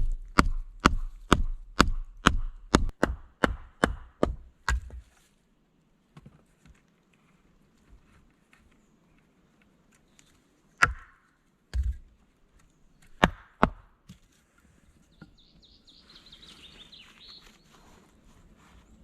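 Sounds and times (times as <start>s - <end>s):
blade chopping wood: 0.0s - 5.0s, 10.8s - 12.0s, 13.1s - 14.2s.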